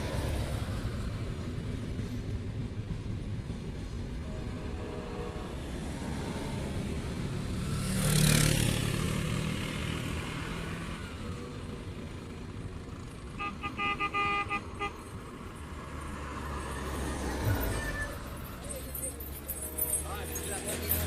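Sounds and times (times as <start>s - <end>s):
traffic noise: 0.0s - 21.0s
vehicle passing with engine hum: 5.4s - 13.4s, 14.0s - 21.0s
car horn short blasts: 13.4s - 14.9s.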